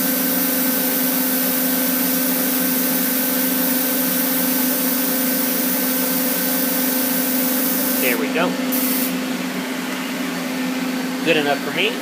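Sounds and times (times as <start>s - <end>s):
welding machine humming: 0.0s - 9.2s
gas hissing from welding torch: 4.4s - 9.2s.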